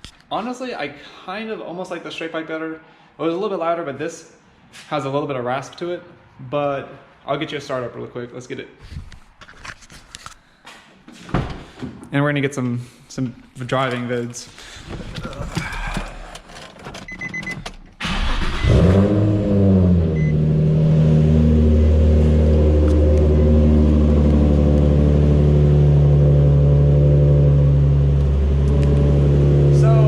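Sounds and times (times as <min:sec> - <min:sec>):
car engine starting and idling: 0:14.8 - 0:30.0
short beeps: 0:20.2 - 0:20.4.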